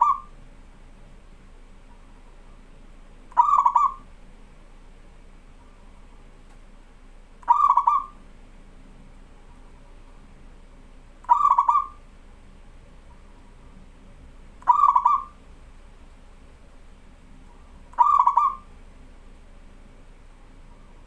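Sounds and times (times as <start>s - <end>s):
dove cooing: 0.0s - 0.4s, 3.3s - 4.1s, 7.4s - 8.2s, 11.2s - 12.0s, 14.6s - 15.4s, 17.5s - 18.7s.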